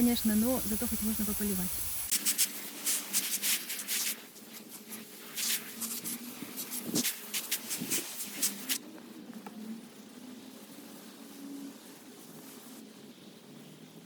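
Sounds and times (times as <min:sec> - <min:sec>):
hose water spraying: 0:00.0 - 0:08.8.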